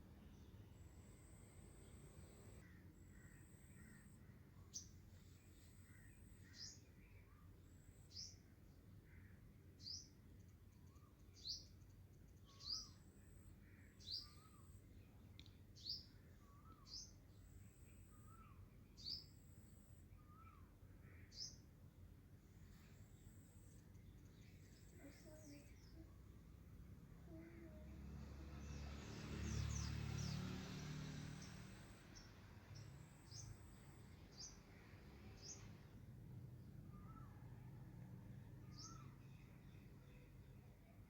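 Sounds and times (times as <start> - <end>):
faint low hum: 0.0 - 41.0
small bird chirping: 0.3 - 8.5, 9.1 - 21.7, 22.6 - 26.6, 31.1 - 36.0.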